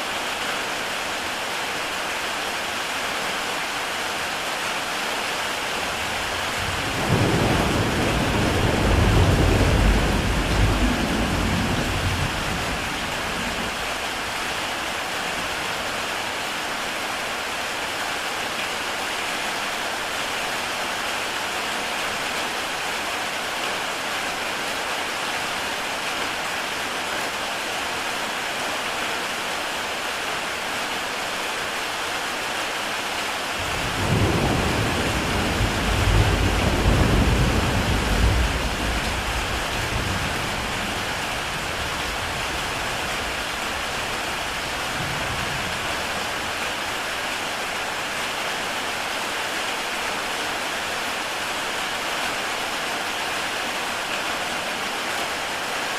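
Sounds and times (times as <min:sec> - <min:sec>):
heavy rain on a tile roof: 0:00.0 - 0:55.9
thunder rumbling: 0:05.8 - 0:14.0, 0:33.6 - 0:46.2.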